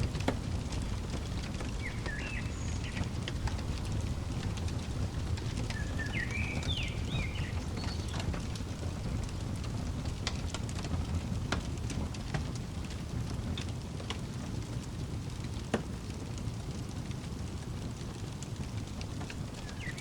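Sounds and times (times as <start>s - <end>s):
steady low rumble: 0.0s - 13.4s
sharp pops of fire: 0.0s - 20.0s
wood fire crackling: 0.0s - 20.0s
bird calling: 1.4s - 8.6s, 19.4s - 20.0s.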